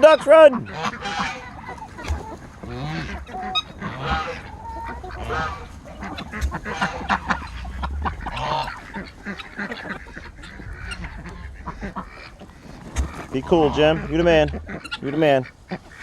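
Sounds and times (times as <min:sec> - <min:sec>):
ducks quacking: 0:00.0 - 0:16.0
geese honking: 0:00.0 - 0:16.0.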